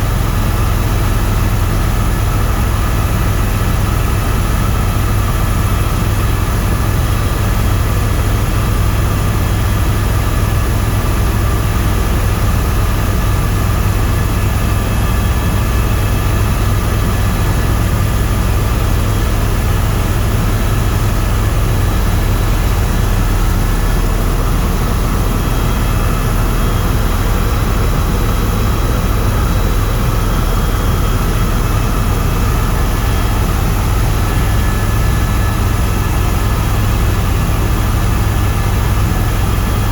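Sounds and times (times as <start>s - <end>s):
helicopter rotor and turbine drone: 0.0s - 39.9s.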